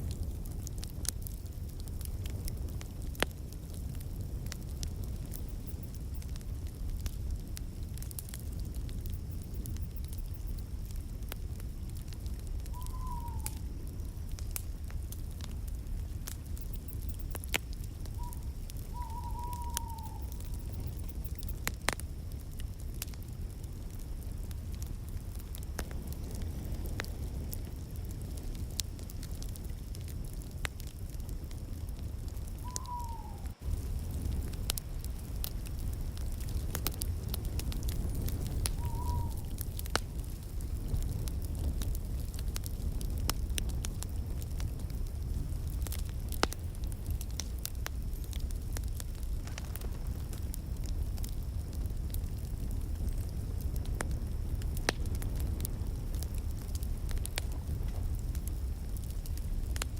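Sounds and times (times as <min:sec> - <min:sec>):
wood fire crackling and popping: 0:00.0 - 0:59.9
whistle-like falling call: 0:12.7 - 0:13.6, 0:18.1 - 0:20.5, 0:32.6 - 0:33.6, 0:38.7 - 0:39.6
short falling whistle: 0:38.7 - 0:39.5.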